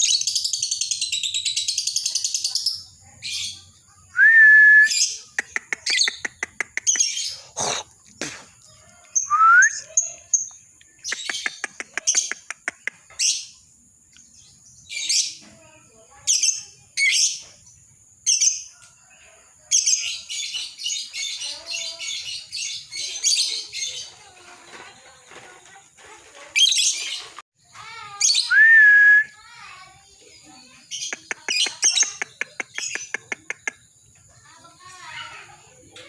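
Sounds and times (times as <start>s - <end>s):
fast bird chatter: 0.0s - 4.1s, 5.0s - 28.5s, 29.4s - 36.0s
bird chirping and screeching: 4.9s - 8.3s, 19.7s - 24.8s, 26.5s - 27.4s, 28.1s - 28.6s
bird clicking trills: 10.5s - 13.1s, 31.0s - 33.9s.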